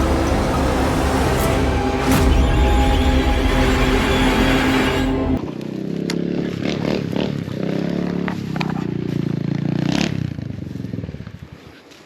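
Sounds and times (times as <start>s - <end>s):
dirt bike engine at low revs: 5.4s - 11.7s.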